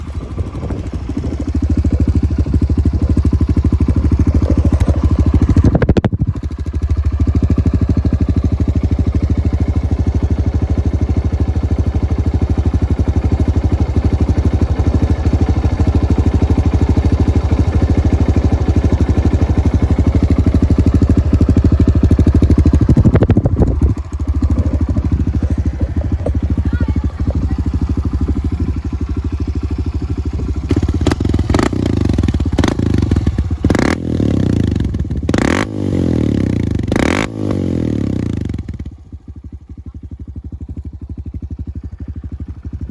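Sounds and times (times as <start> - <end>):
motorcycle engine idling: 0.0 - 42.9
engine throttle blip: 4.0 - 6.7, 20.6 - 33.8.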